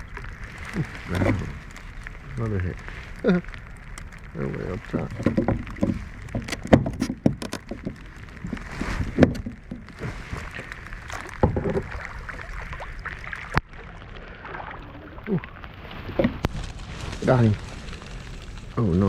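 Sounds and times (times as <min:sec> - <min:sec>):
water splashing around a kayak: 0:00.0 - 0:18.7
rain hiss: 0:00.0 - 0:19.0
sharp knocks and clicks: 0:05.1 - 0:08.1, 0:11.2 - 0:11.9.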